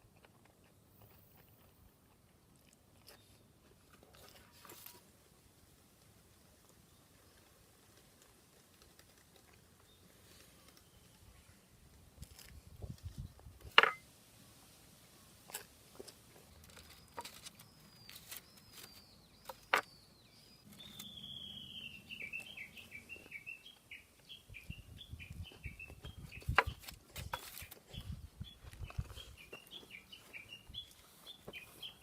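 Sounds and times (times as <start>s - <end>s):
songbird singing: 16.3s - 32.0s.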